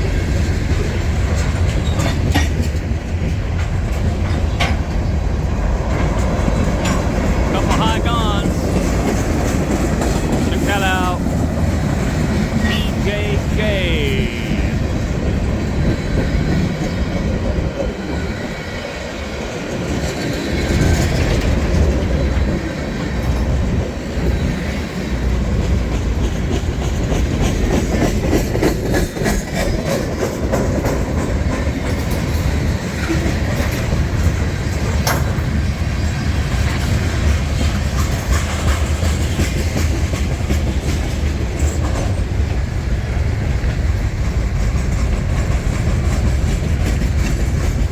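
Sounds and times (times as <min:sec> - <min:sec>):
freight train rumble: 0:00.0 - 0:47.9
train wheels clicking over rail joints: 0:00.4 - 0:07.5, 0:19.5 - 0:47.9.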